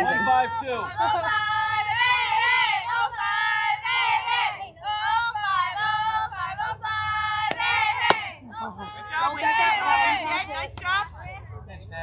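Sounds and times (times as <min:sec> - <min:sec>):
children chanting a cheer: 0:01.3 - 0:04.6, 0:07.2 - 0:08.4.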